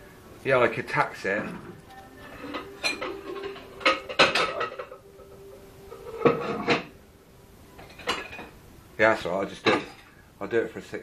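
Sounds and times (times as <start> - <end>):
faint steady hum: 0.0 - 11.0
crockery and cutlery clinking: 0.9 - 7.0, 7.7 - 8.6, 9.4 - 10.1.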